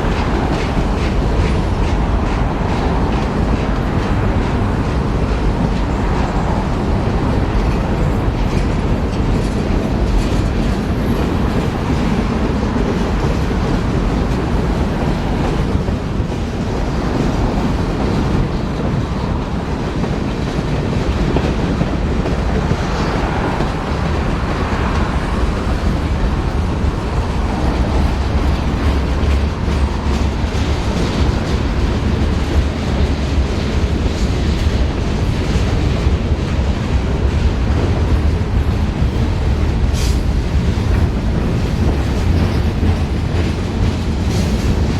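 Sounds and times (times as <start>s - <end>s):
clickety-clack of wheels on rails: 0.0s - 44.9s
train rumbling past: 0.0s - 44.9s.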